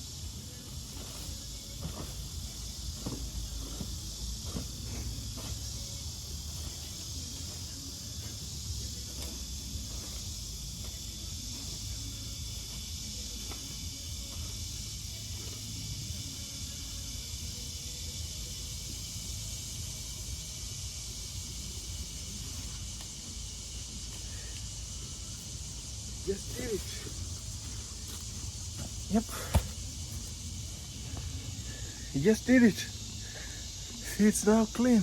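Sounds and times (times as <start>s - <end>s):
crickets chirring: 0.0s - 35.0s.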